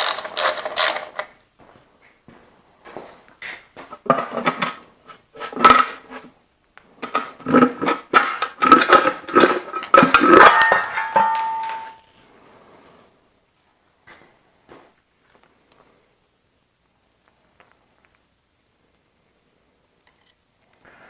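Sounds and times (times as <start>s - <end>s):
metal tools clanking: 8.7s - 12.0s
ringing metal tone: 10.2s - 12.1s.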